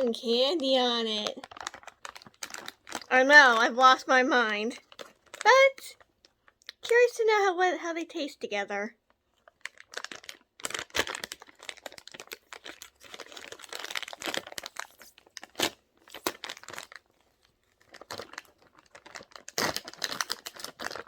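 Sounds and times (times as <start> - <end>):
plastic packaging crinkling: 0.0 - 6.9, 9.0 - 21.0.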